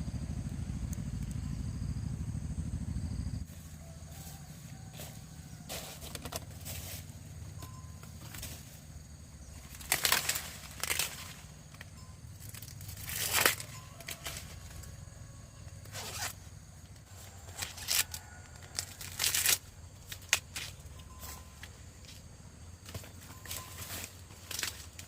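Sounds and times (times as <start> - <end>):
steady low hum: 0.0 - 18.1
tearing and rustling: 9.6 - 14.7, 15.8 - 16.4, 17.4 - 20.8.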